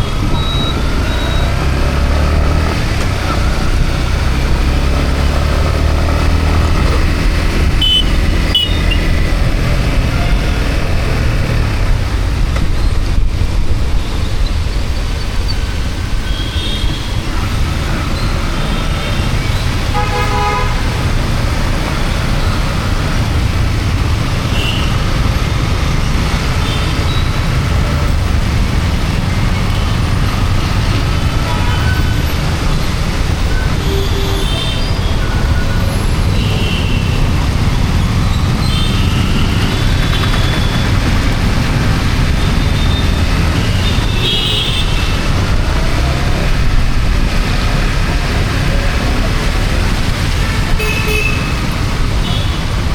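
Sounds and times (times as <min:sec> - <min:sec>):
high-pitched tones from traffic: 0:00.0 - 0:02.2, 0:07.8 - 0:09.4, 0:24.4 - 0:28.2, 0:29.3 - 0:46.0
motorcycle riding rumble: 0:00.0 - 0:52.9.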